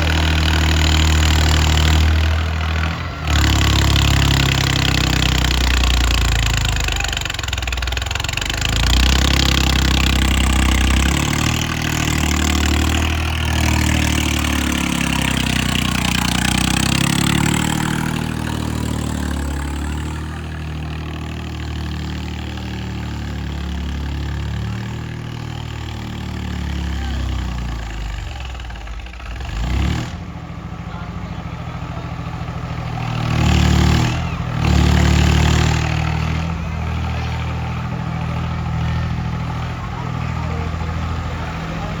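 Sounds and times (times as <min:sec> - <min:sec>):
diesel tractor engine under load: 0:00.0 - 0:42.0.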